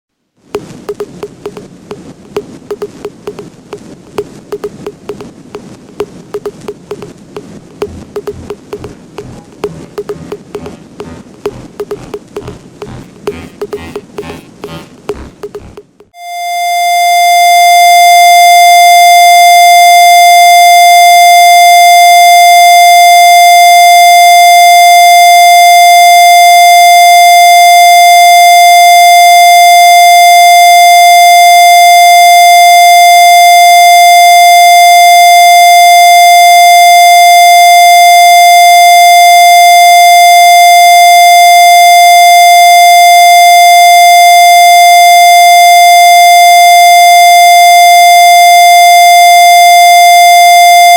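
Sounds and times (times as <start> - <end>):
steady electronic tone: 0.6 - 17.1.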